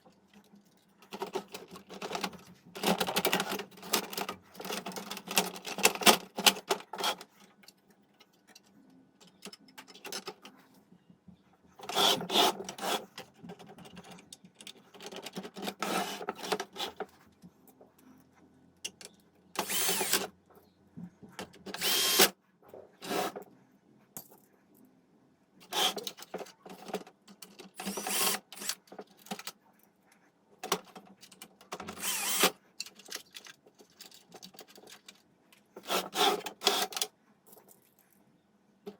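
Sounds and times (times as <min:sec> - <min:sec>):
small power tool whirring: 0:19.6 - 0:20.3, 0:21.8 - 0:22.3, 0:27.8 - 0:28.8, 0:31.9 - 0:32.6.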